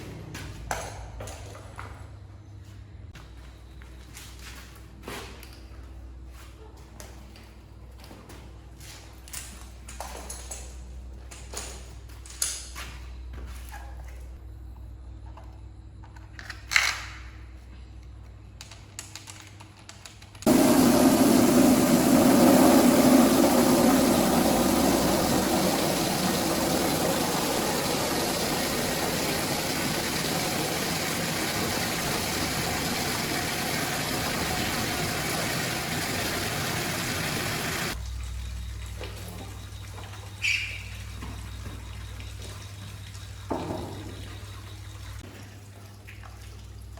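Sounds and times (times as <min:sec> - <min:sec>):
machine rushing noise: 0:20.5 - 0:38.0.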